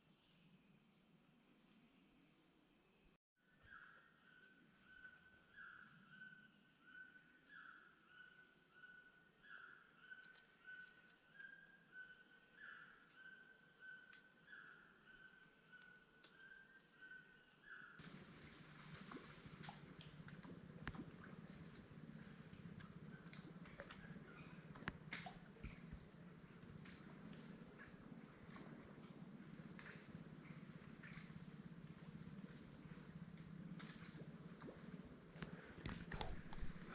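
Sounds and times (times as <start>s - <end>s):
high-pitched insect drone: 0.0s - 36.9s
crackles and rustles: 33.7s - 36.9s.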